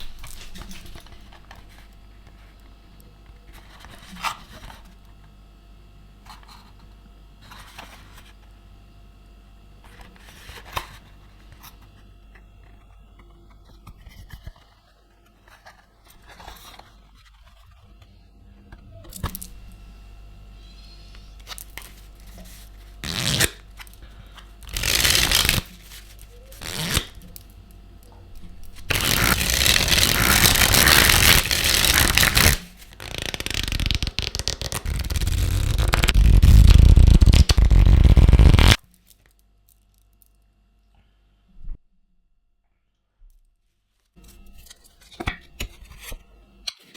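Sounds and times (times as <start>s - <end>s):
playing cards rustling: 21.4s - 27.4s, 28.7s - 38.8s
card packaging tearing and crinkling: 23.0s - 23.6s, 24.6s - 27.4s, 28.7s - 38.8s.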